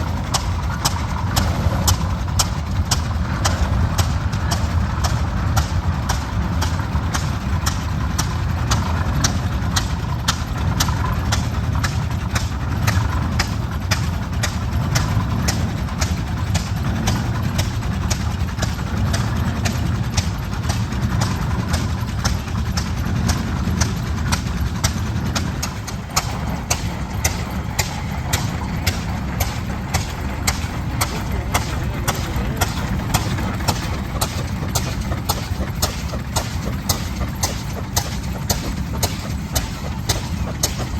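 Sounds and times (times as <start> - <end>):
tractor engine popping slowly: 0.0 - 40.9.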